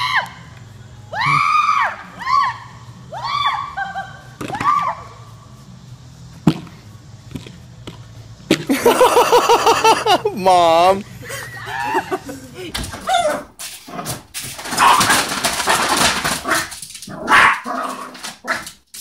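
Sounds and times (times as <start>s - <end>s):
loud fast laughter: 8.7s - 10.3s, 11.2s - 12.7s.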